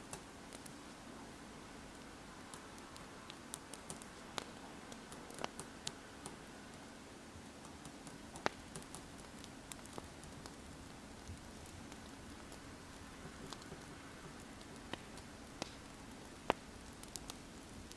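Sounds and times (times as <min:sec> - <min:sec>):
wood fire crackling: 0:00.0 - 0:17.9.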